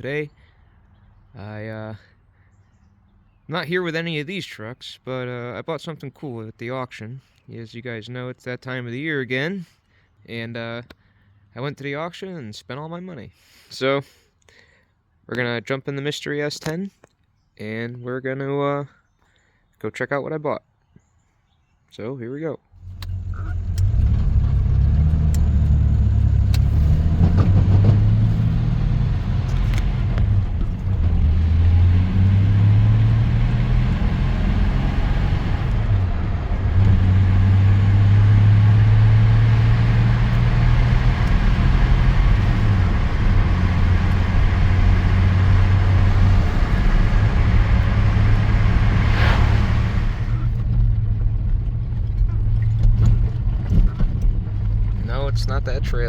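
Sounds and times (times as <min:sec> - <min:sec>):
pickup truck engine rumble: 0:22.8 - 0:56.0.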